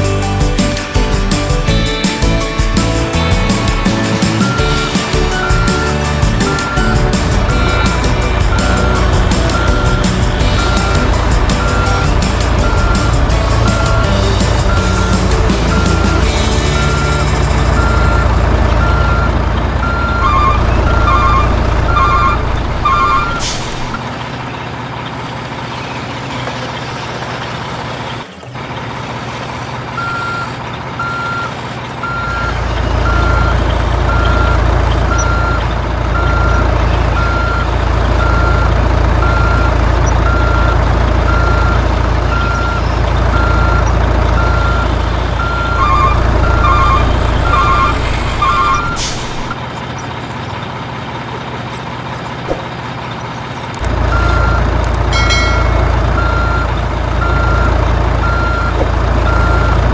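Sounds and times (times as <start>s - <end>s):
diesel engine rumble: 0.0s - 59.9s
reversing beeper: 2.7s - 24.1s, 30.0s - 49.6s, 53.8s - 59.9s
air brake hiss: 47.2s - 49.5s.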